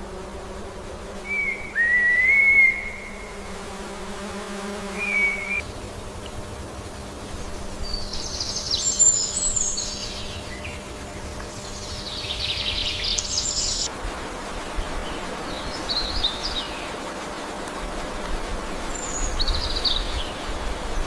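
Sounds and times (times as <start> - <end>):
songbird singing: 1.2 - 3.7, 4.6 - 5.8, 7.4 - 13.9.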